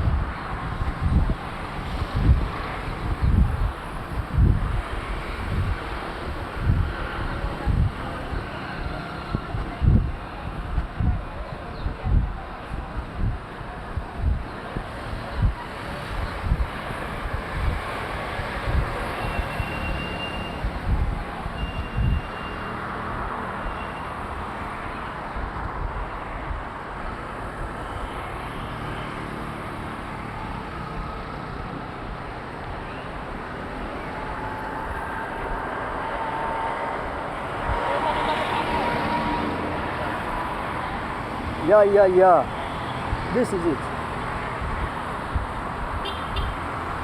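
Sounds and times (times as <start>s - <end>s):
passing vehicles: 0.0s - 47.0s.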